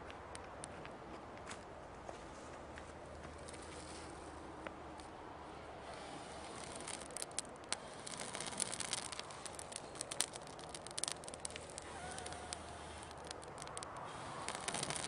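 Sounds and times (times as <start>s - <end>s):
dry wood crackling and snapping: 5.8s - 15.0s.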